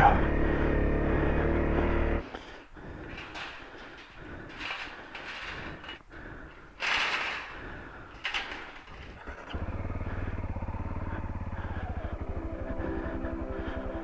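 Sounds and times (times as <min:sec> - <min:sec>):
motorcycle engine pulsing: 0:00.0 - 0:04.7, 0:07.7 - 0:14.0.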